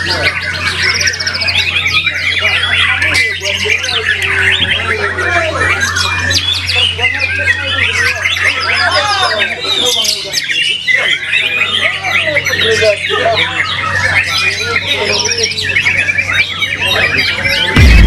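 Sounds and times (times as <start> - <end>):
bird singing whistles and trills: 0.0 - 17.8
steady low hum: 17.8 - 18.0.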